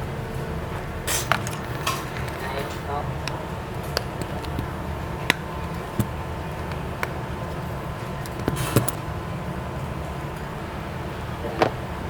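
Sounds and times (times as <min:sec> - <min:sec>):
low background hum: 0:00.0 - 0:12.0
tools clicking on a workbench: 0:01.2 - 0:07.2, 0:08.2 - 0:09.0.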